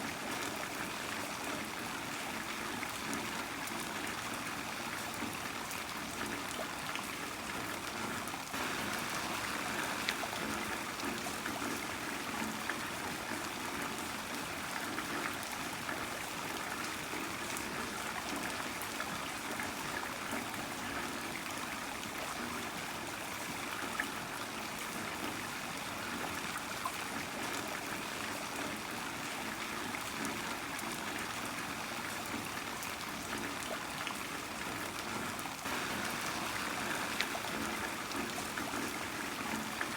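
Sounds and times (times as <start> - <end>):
trickling water: 0.0 - 39.9
heavy rain falling: 8.6 - 12.3, 35.7 - 39.9.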